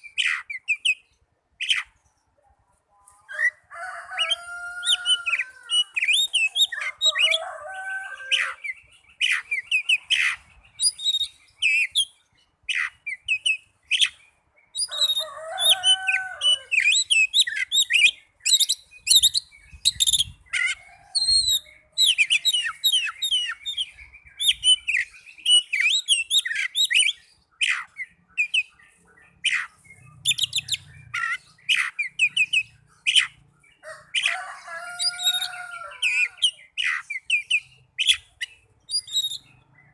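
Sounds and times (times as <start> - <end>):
songbird whistles and trills: 8.4 - 33.4, 35.0 - 39.9.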